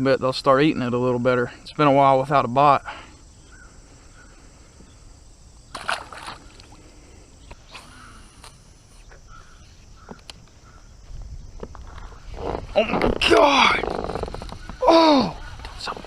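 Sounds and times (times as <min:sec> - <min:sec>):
water sloshing: 0:05.6 - 0:08.1.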